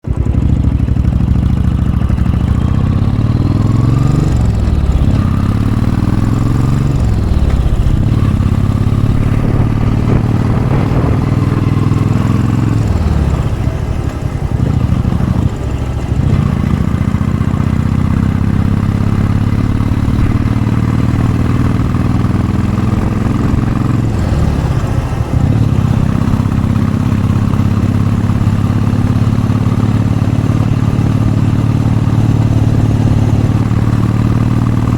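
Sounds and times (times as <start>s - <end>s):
motorcycle engine revving uphill: 0.0s - 34.9s.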